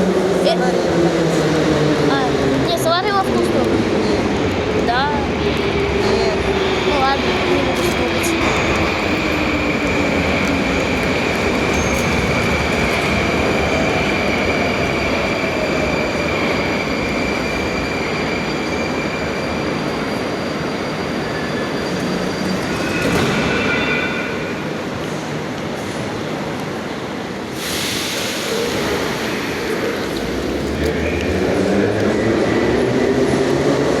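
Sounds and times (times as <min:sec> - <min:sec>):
metro train wheels and motors: 0:00.0 - 0:34.0
train squeal: 0:06.0 - 0:24.8.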